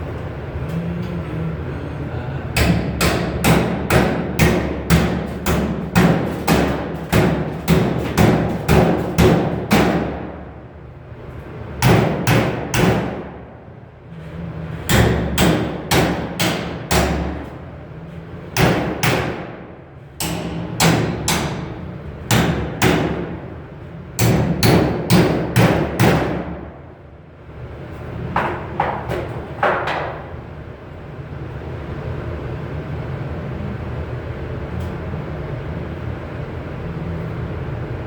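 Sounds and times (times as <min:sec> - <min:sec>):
hammer on sheet metal: 0:02.6 - 0:10.5, 0:11.8 - 0:13.5, 0:14.8 - 0:17.6, 0:18.5 - 0:23.5, 0:24.2 - 0:26.8.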